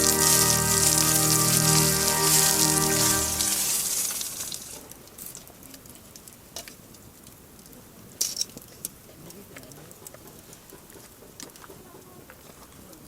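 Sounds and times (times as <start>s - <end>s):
campfire crackling: 0.0s - 4.7s
faint hiss: 0.0s - 4.8s.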